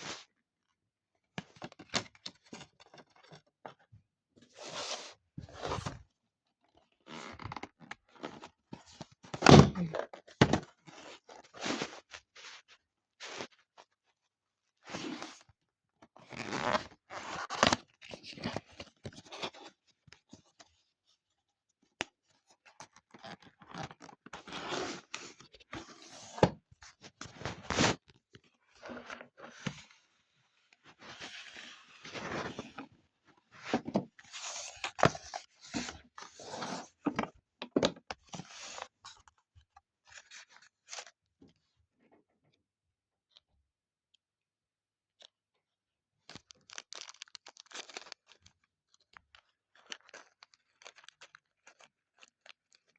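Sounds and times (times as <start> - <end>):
packaging rustling and scraping: 33.6 - 39.3, 46.4 - 48.3, 49.4 - 52.5.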